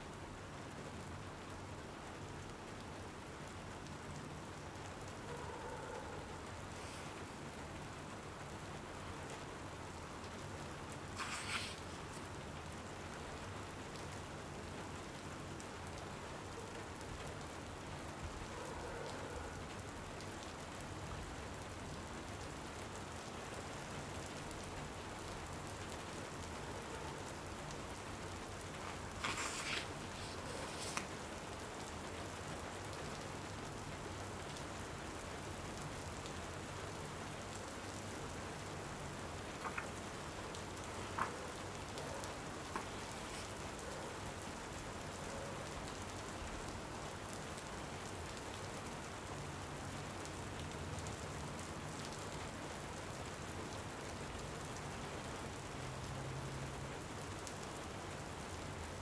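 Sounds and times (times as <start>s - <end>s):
steady rain: 0.0s - 59.0s
crackly noise burst: 10.9s - 12.3s, 28.6s - 31.4s.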